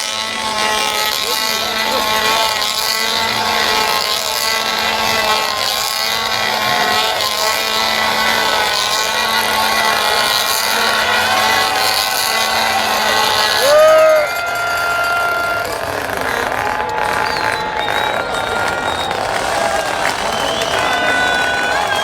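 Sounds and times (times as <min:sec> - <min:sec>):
chainsaws revving: 0:00.0 - 0:22.0.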